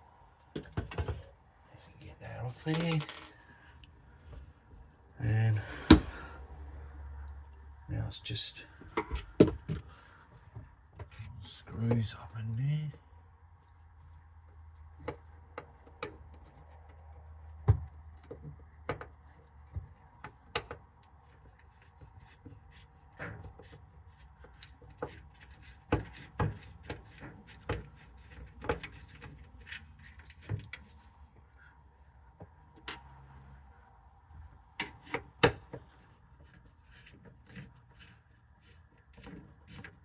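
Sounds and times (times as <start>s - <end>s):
plastic parts clicking and knocking: 2.6s - 3.5s.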